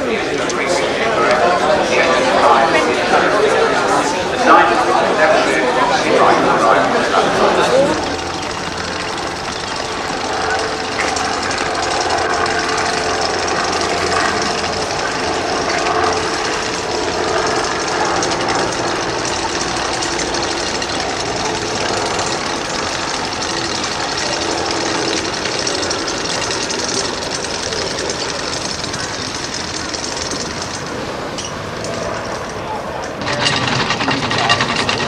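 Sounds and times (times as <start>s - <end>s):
car engine rattling: 7.2s - 35.0s.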